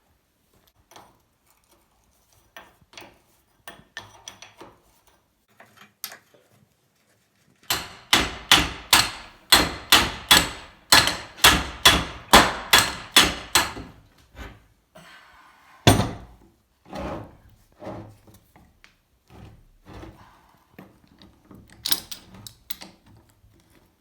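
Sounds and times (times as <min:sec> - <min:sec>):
hammer striking steel vise: 0:07.7 - 0:14.0.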